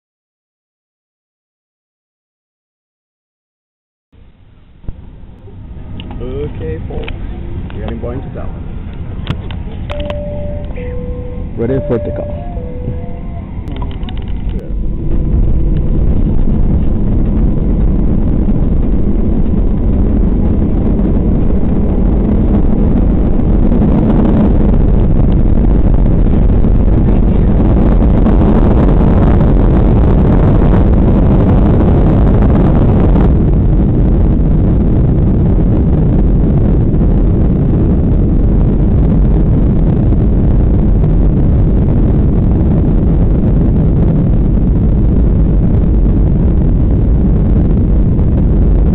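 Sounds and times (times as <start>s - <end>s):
jet engines rumbling at takeoff: 4.2s - 48.9s.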